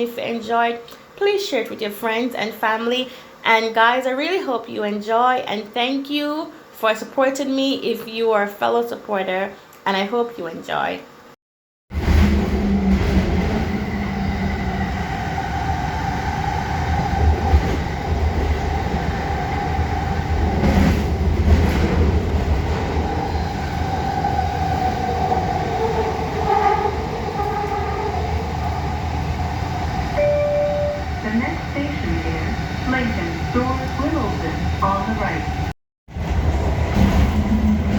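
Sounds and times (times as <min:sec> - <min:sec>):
train rumble: 0:11.9 - 0:37.9
wavering train whine: 0:22.6 - 0:35.7.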